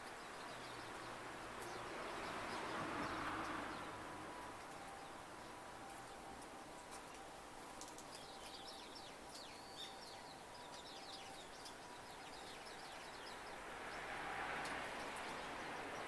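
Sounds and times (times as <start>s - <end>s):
small songbirds twittering: 0.0s - 4.0s, 4.6s - 16.0s.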